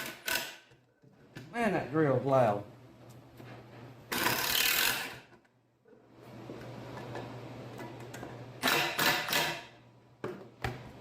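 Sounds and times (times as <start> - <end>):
power drill driving screw into wood: 0.0 - 0.6, 4.1 - 5.2, 8.6 - 9.6.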